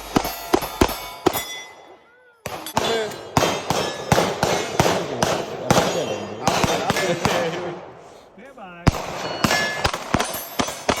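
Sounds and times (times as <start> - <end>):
rapid gunfire: 0.0 - 1.4, 2.5 - 7.8, 8.9 - 11.0
steel targets ringing: 0.0 - 4.8, 5.6 - 6.5, 9.1 - 11.0.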